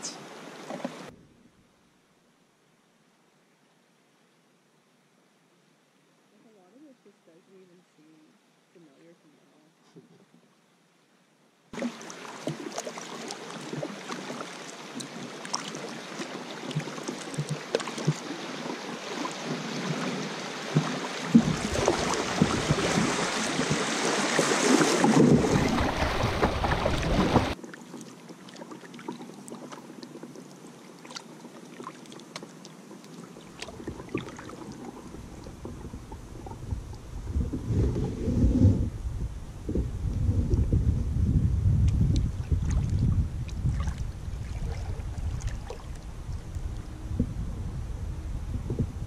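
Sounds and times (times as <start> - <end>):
river water rushing and splashing: 0.0 - 1.1, 11.8 - 29.9, 43.6 - 47.0.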